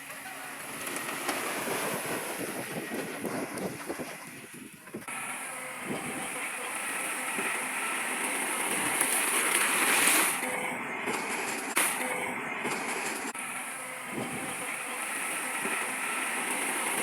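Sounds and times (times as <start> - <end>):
heavy earthmoving machinery grinding: 0.0 - 17.0.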